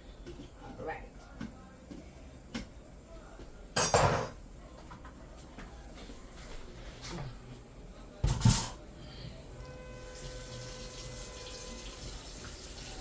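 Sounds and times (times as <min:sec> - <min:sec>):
faint steady tone: 0:09.0 - 0:12.0
water gushing from tap: 0:10.2 - 0:13.0.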